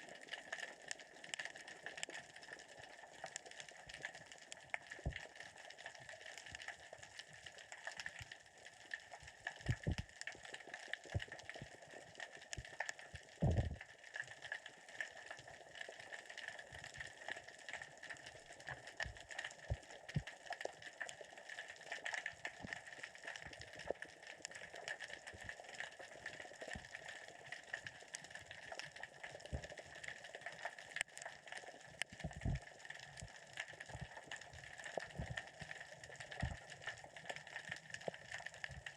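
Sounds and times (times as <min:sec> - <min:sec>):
underwater rocks clicking: 0:00.3 - 0:08.1, 0:09.4 - 0:14.6, 0:16.8 - 0:38.9
low underwater thumps: 0:09.7 - 0:10.0, 0:13.4 - 0:13.8.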